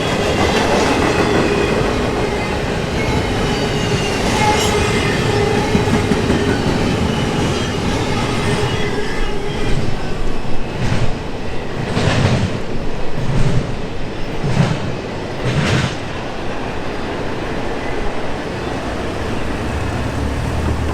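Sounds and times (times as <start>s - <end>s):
train wheels rumbling on rail: 0.0s - 20.9s
wheel squeal: 2.3s - 9.9s
wheels clattering over rail joints: 18.4s - 20.9s.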